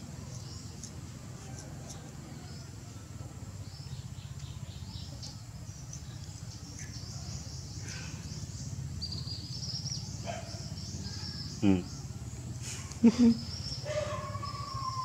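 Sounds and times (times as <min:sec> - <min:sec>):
birds chirping: 0:00.0 - 0:15.0
high steady bird trill: 0:03.6 - 0:15.0.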